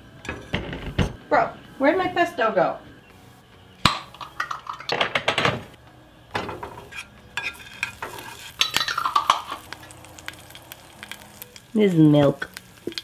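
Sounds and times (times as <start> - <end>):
metal clanks: 6.3 - 9.8
metal utensils clinking on dishes: 6.3 - 10.4.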